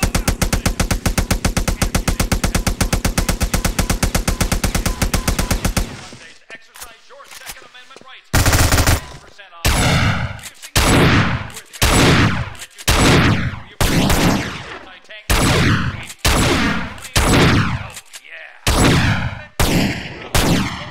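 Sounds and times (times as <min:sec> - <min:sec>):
rapid gunfire burst: 0:00.0 - 0:06.2, 0:08.3 - 0:18.0, 0:18.6 - 0:20.9
heavy single gunshots echoing: 0:08.4 - 0:17.9, 0:18.6 - 0:20.9.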